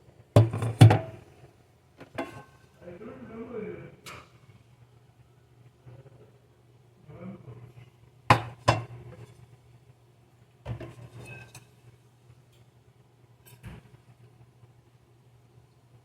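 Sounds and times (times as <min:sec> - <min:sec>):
dishes and utensils clinking: 0:02.0 - 0:02.6, 0:10.7 - 0:11.8.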